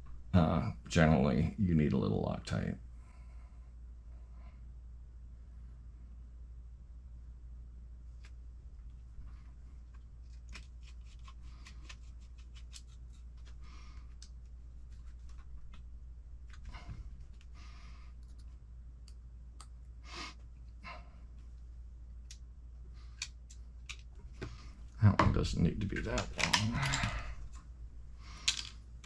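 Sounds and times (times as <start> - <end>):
steady low hum: 0.0 - 29.0
small parts and tools clicking: 23.1 - 24.2, 25.9 - 27.4, 28.3 - 28.8.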